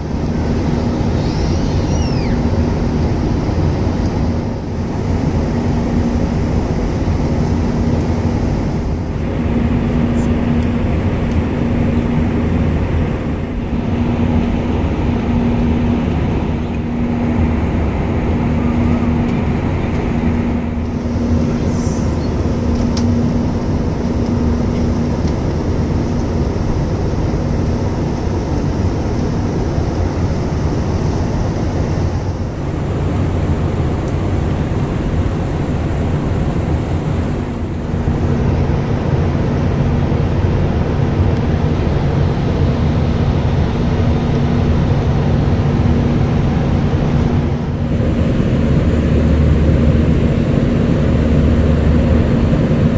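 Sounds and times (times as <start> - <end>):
low engine hum: 0.0 - 52.9
airflow rushing: 8.2 - 25.1.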